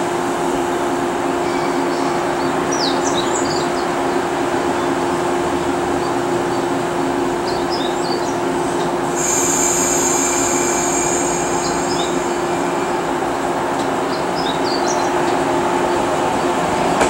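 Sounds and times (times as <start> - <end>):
electric train humming: 0.0 - 17.0
high-pitched metallic squeal: 9.2 - 15.8.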